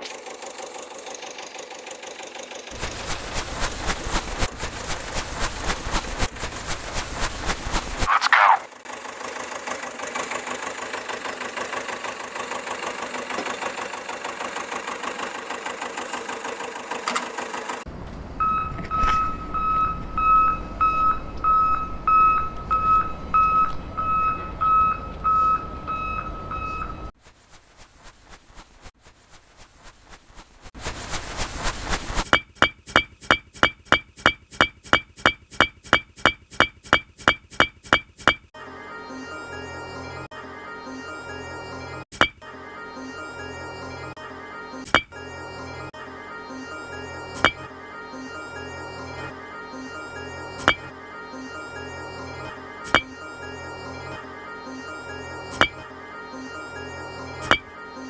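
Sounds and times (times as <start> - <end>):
small motor rattling: 0.0 - 7.8, 8.8 - 17.9
electronic beeping: 32.3 - 38.5, 50.6 - 50.9, 52.9 - 53.1, 57.4 - 57.7.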